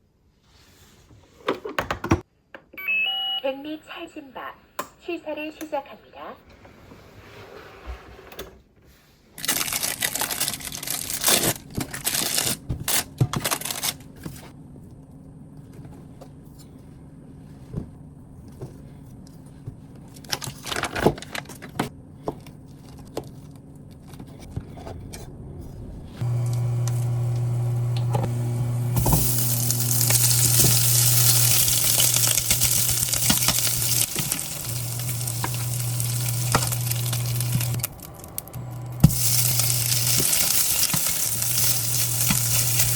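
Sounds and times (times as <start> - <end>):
steady low hum: 21.8 - 42.9
food sizzling in a pan: 26.2 - 37.8, 39.0 - 42.9.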